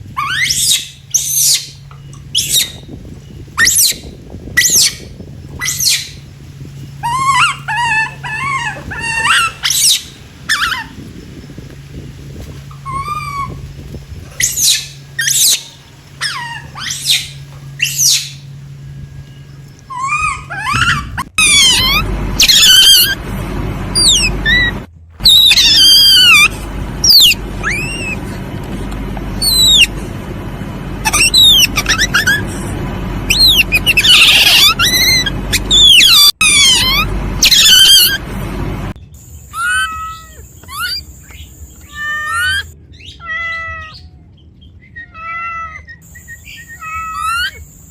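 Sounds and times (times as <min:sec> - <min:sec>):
steady low hum: 0:00.0 - 0:43.0
animal chirping: 0:00.1 - 0:11.5, 0:12.7 - 0:23.2, 0:24.0 - 0:30.0, 0:31.0 - 0:32.7, 0:33.3 - 0:38.2, 0:39.2 - 0:47.9
quick warbling calls: 0:00.2 - 0:06.2, 0:07.0 - 0:11.0, 0:12.7 - 0:18.6, 0:19.2 - 0:23.2, 0:24.0 - 0:28.4, 0:29.4 - 0:30.0, 0:31.0 - 0:32.7, 0:33.3 - 0:38.2.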